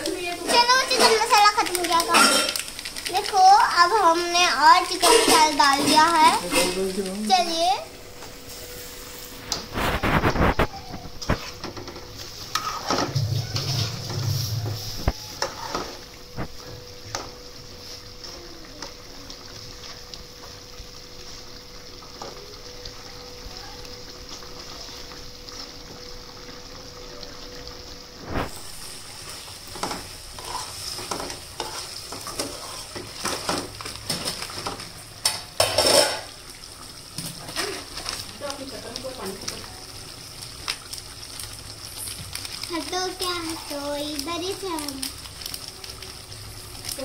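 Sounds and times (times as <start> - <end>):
food sizzling in a pan: 0.0 - 47.0
metal spoon scraping a pan: 5.0 - 6.9, 12.4 - 16.0, 29.7 - 33.7.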